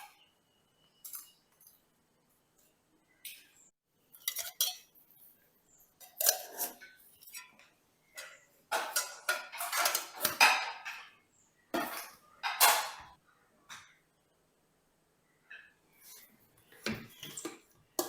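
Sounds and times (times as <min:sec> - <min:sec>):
dishes and cutlery clinking: 0:03.3 - 0:05.2, 0:06.0 - 0:14.0, 0:15.5 - 0:18.0.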